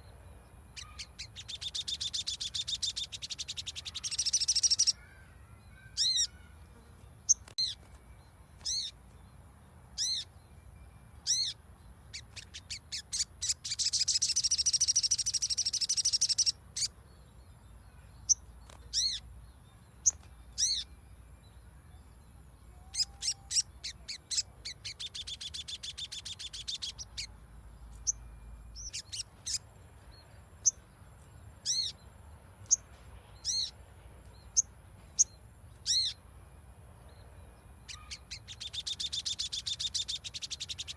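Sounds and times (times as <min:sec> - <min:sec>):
bird chattering trill: 0:00.7 - 0:05.0, 0:05.9 - 0:06.5, 0:11.3 - 0:16.9, 0:22.8 - 0:27.3, 0:28.8 - 0:29.6, 0:37.8 - 0:40.9
bird calling: 0:00.8 - 0:06.6, 0:37.8 - 0:40.9.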